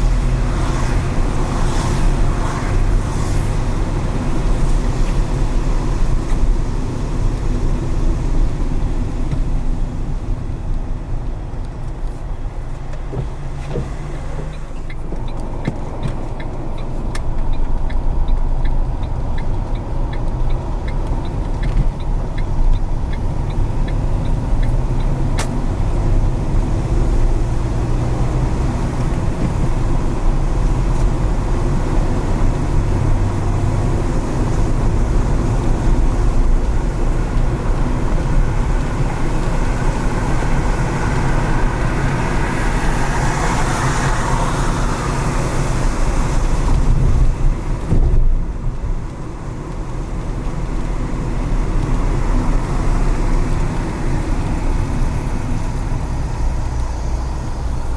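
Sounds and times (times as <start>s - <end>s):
car engine and road noise: 0.0s - 57.9s
light regular ticking: 4.4s - 33.1s, 45.1s - 57.9s.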